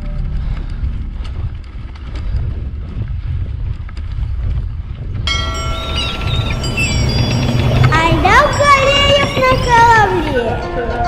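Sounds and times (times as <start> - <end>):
wind rumbling on microphone: 0.0 - 10.6.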